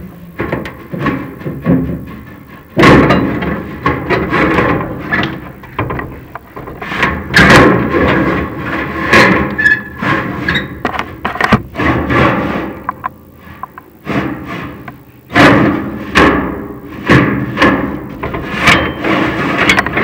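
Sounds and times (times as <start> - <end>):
rod clanking and scraping in metal flue: 0.2 - 12.7, 16.9 - 20.0.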